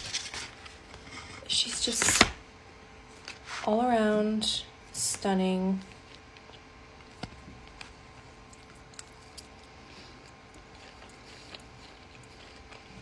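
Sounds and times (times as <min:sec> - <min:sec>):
chewing salad: 0:05.8 - 0:13.0.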